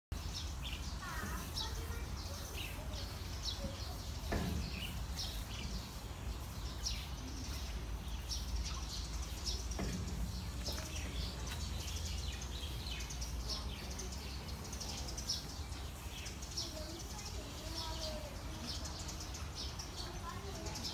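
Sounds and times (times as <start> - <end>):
birds chirping: 0.1 - 20.9.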